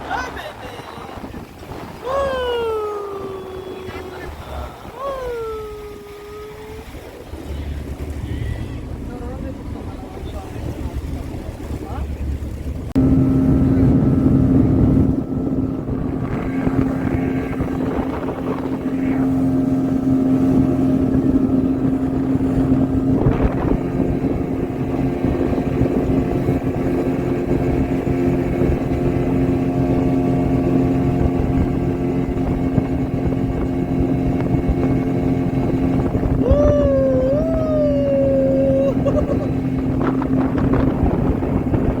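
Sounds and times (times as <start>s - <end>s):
rush of water: 0.0s - 42.0s
speedboat engine humming: 0.0s - 42.0s
wavering tone: 2.0s - 6.8s, 36.4s - 41.6s.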